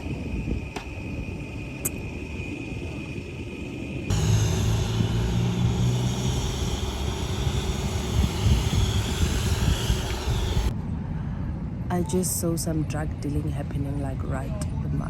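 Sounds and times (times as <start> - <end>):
low hum: 4.1 - 10.7
rushing machine noise: 4.1 - 10.7.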